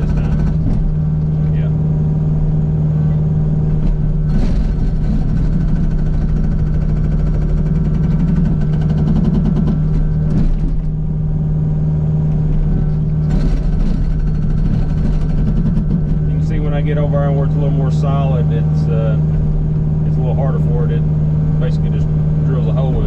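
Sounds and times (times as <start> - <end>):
hydraulic hammer pounding rock: 0.0 - 1.3, 3.7 - 11.1, 12.5 - 18.2
diesel engine under load: 0.0 - 23.0.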